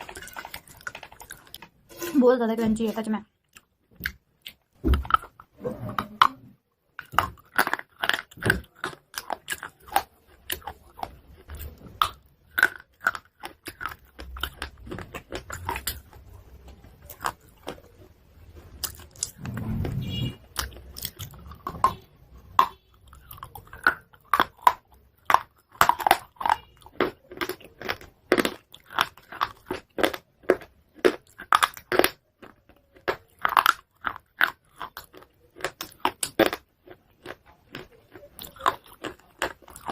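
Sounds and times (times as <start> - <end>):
chalk crunching while chewed: 7.0 - 16.3, 18.7 - 22.0, 22.6 - 39.9
low muffled rumble: 19.3 - 20.5.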